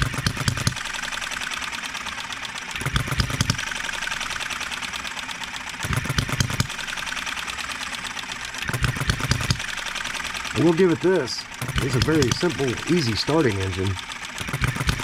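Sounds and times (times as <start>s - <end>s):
model engine ticking: 0.0s - 15.0s
engine firing heavily: 8.6s - 15.0s.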